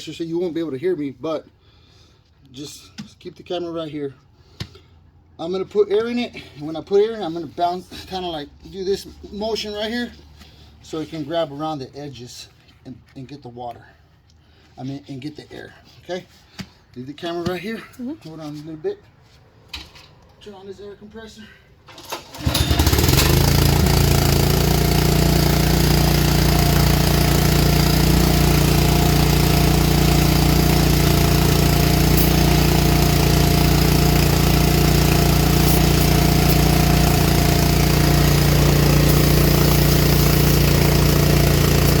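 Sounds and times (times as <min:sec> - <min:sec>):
air compressor running: 0:21.9 - 0:42.0.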